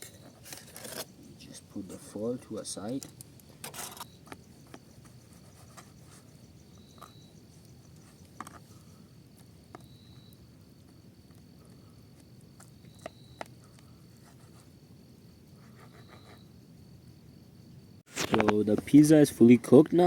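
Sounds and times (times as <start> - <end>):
faint high insect drone: 0.0 - 20.0
brief rustle: 18.1 - 18.8.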